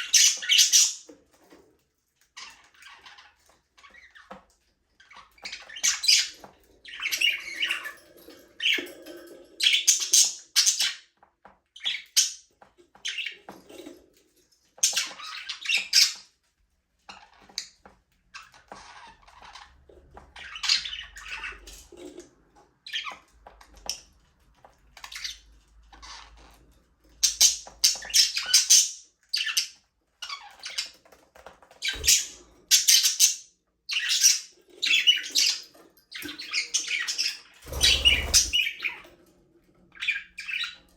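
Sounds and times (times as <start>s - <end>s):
budgerigars chattering and squawking: 0.0s - 1.1s, 5.0s - 11.0s, 31.8s - 39.1s, 40.0s - 40.8s.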